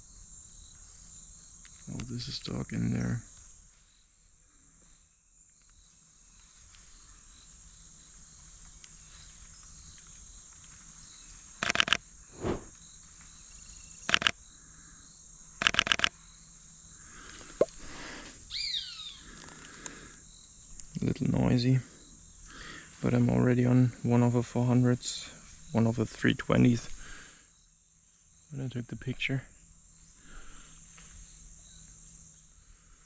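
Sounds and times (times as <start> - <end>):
insects droning: 13.5 - 14.2.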